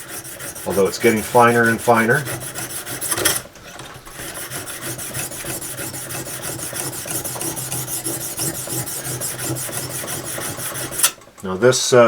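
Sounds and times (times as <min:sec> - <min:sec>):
sharpening hone rasping on blade: 0:04.3 - 0:11.2.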